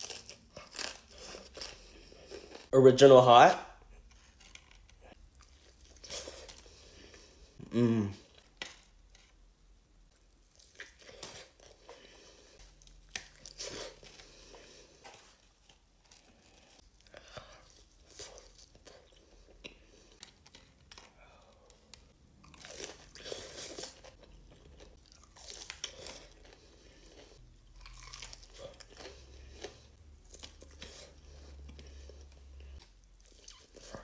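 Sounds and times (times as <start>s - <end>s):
short vocal sound: 7.6s - 8.3s.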